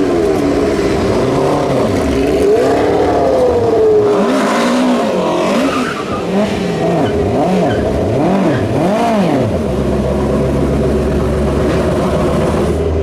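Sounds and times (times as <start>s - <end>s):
car engine revving: 0.0s - 13.0s
car engine idling: 5.9s - 13.0s.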